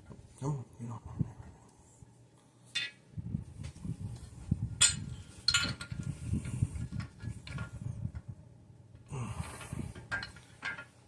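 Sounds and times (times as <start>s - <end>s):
metal tool parts clinking: 4.8s - 6.0s.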